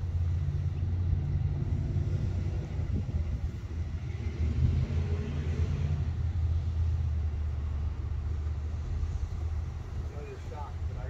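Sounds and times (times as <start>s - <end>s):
car engine idling: 6.1s - 11.0s.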